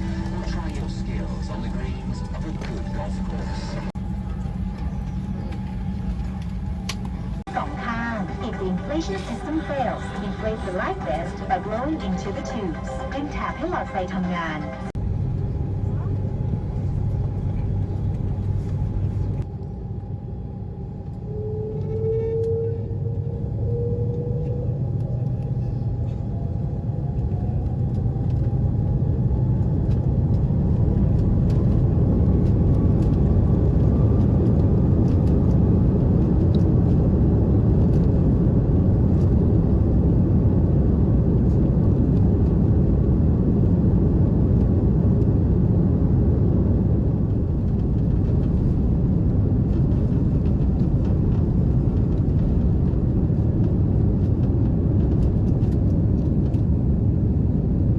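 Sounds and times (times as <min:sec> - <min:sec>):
jet engines spooling up: 0:00.0 - 0:15.0
jet engine whine: 0:00.0 - 0:57.9.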